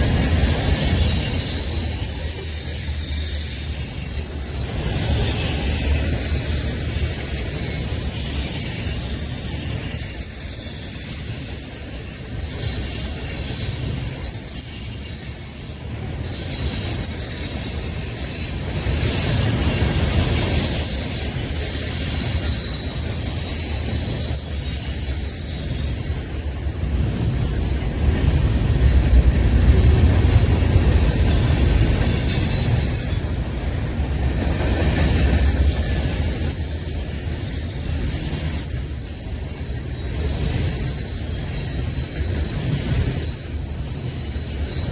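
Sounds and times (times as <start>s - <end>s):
high wheel squeals: 0.0s - 44.9s
train cars rumbling: 0.0s - 44.9s.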